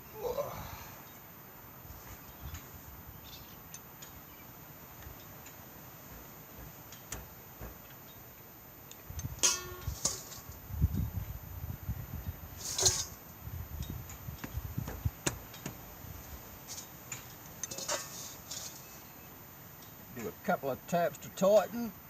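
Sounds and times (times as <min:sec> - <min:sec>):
handling noises and ticks: 0:03.6 - 0:10.7, 0:12.6 - 0:19.2.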